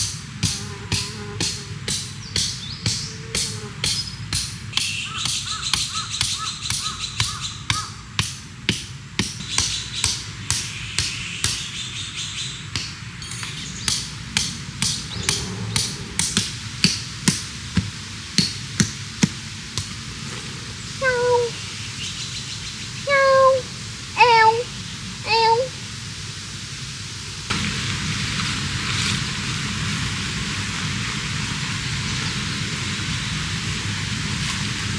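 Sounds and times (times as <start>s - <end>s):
whining animal calls: 15.0s - 16.5s, 21.0s - 21.6s, 23.1s - 25.8s.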